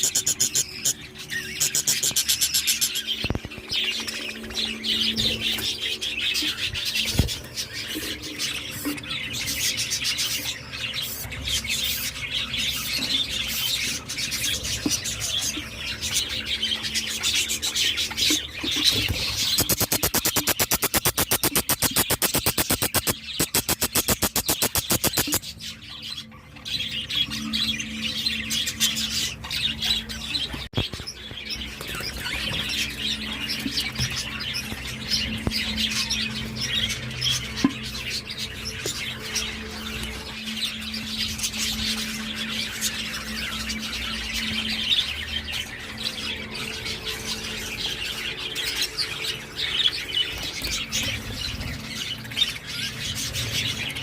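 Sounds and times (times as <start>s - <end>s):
caged birds chirping and squawking: 0.0s - 54.0s
fast even pulsing: 19.6s - 25.4s.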